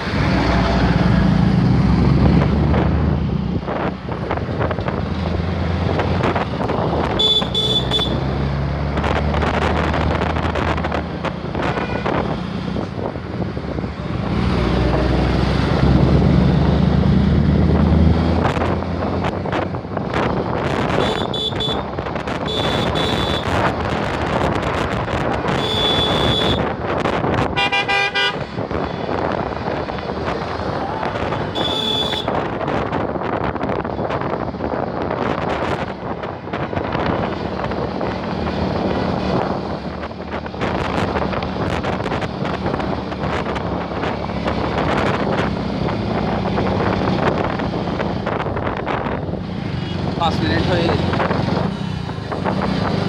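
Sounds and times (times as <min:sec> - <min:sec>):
road and wind noise: 0:00.0 - 0:53.0.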